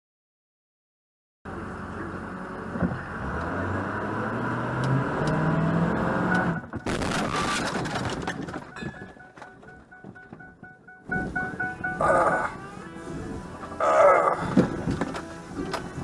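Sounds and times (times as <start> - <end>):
car engine speeding up: 1.7 - 8.7
loud crash-like burst: 6.8 - 8.8
short high tone: 8.1 - 12.8.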